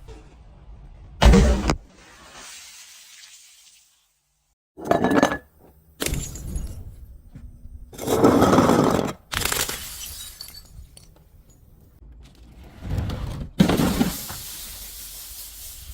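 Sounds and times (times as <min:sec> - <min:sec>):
glass shattering and crunching: 0:09.3 - 0:11.6.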